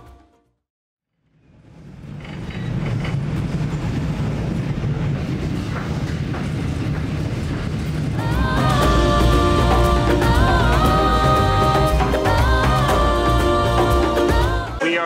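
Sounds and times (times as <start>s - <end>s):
music: 0.0s - 0.6s, 8.2s - 15.0s
train wheels on rail: 1.5s - 11.9s.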